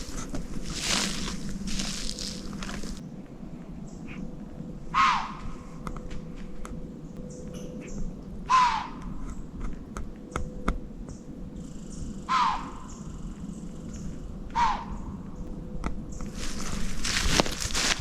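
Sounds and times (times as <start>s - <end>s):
bird cawing: 0.0s - 3.0s, 4.9s - 5.9s, 7.6s - 9.3s, 12.2s - 13.4s, 14.5s - 15.4s.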